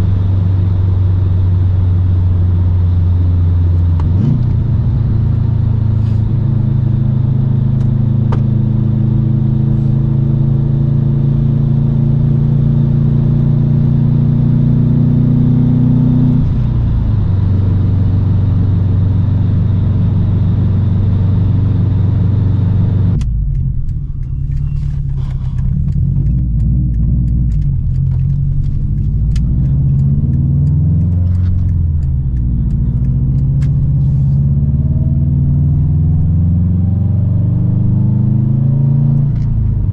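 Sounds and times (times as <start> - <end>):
car exhaust drone: 0.0 - 39.9.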